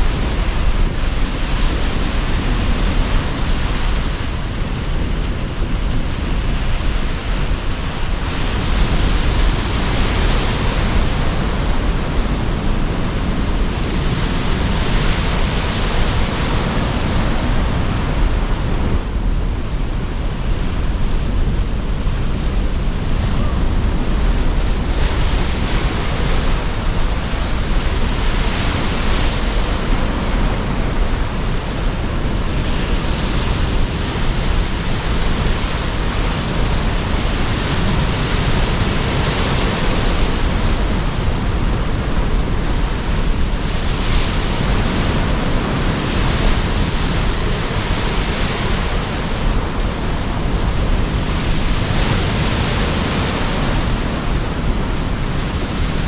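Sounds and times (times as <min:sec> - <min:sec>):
sea surf waves: 0:00.0 - 0:56.0
strong wind rumble: 0:00.0 - 0:56.0.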